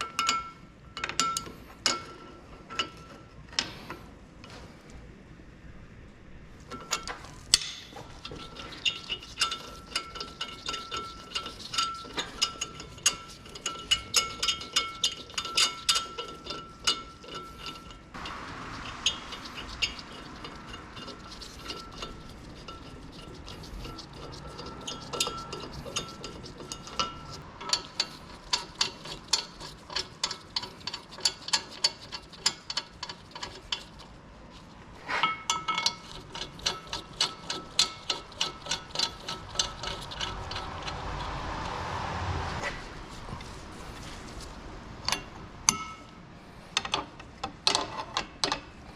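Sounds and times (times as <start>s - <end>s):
ratchet wrench clicking: 35.7s - 41.3s.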